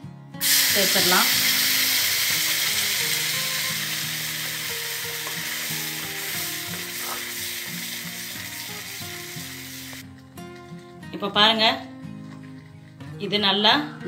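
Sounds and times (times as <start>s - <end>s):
paste sizzling in a pan: 0.4s - 10.0s.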